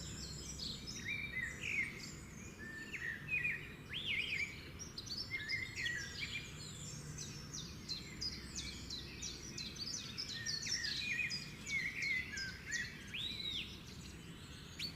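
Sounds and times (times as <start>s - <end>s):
small birds chirping and singing: 0.0s - 14.9s.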